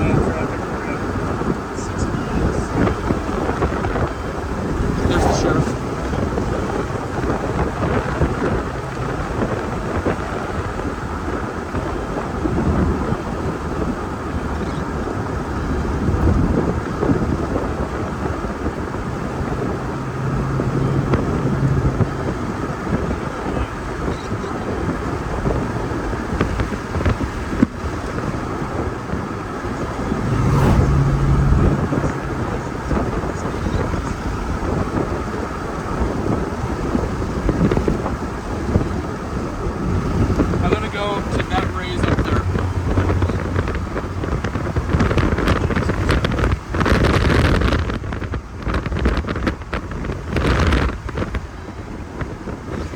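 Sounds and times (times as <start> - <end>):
wind: 0.0 - 52.9.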